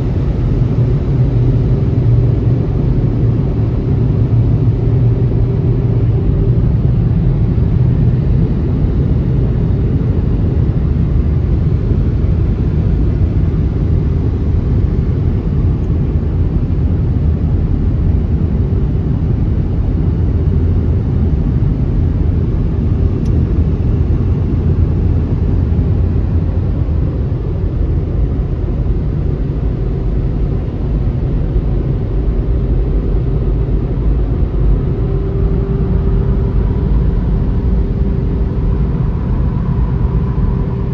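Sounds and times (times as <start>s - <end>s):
car wash machinery rumbling: 0.0s - 5.9s, 32.7s - 40.9s
faint hum: 0.0s - 40.9s.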